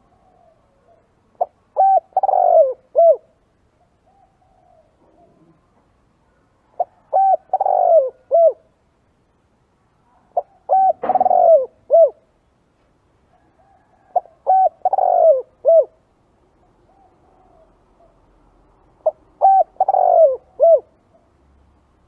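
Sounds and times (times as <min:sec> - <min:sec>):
dove cooing: 0:00.0 - 0:08.7, 0:10.2 - 0:12.3, 0:13.4 - 0:16.0, 0:16.6 - 0:18.3, 0:19.0 - 0:21.3.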